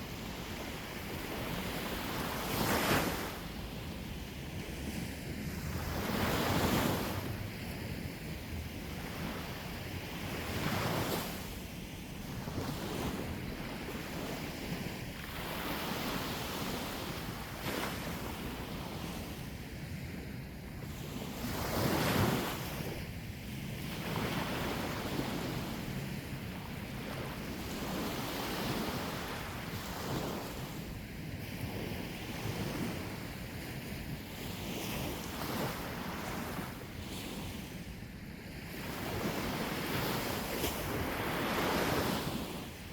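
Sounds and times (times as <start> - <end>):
sea waves breaking on shore: 0.0 - 42.9.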